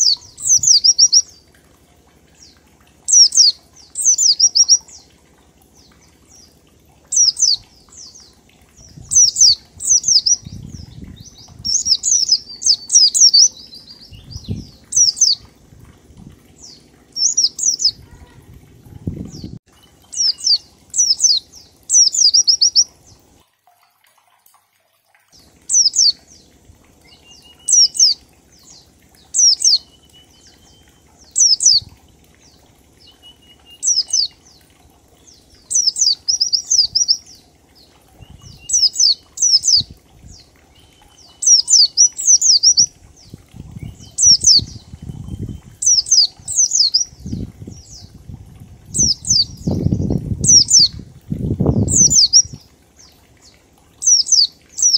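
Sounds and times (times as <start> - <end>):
low rumbling bursts: 8.7 - 19.7.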